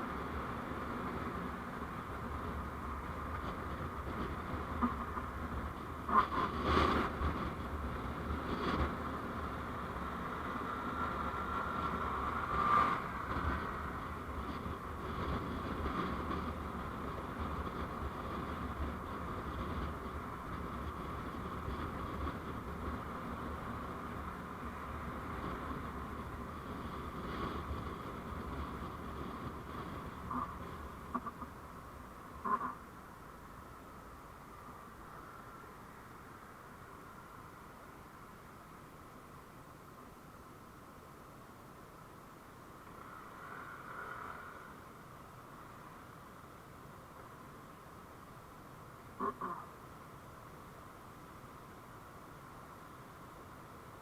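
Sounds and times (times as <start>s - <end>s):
vehicle running noise: 0.0s - 54.0s.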